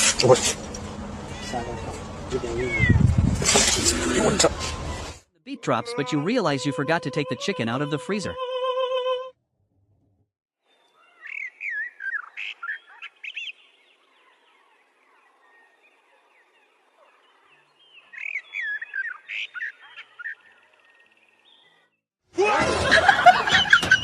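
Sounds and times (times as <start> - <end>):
bird chirping: 10.7 - 22.0.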